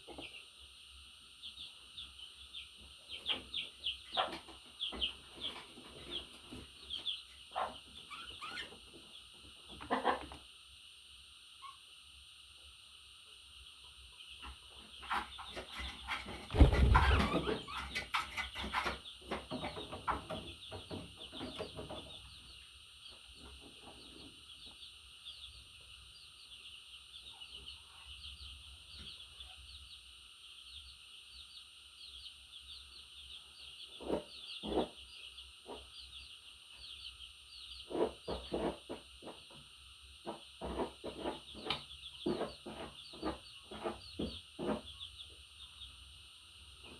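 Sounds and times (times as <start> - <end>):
knocking and rustling: 15.0 - 22.2.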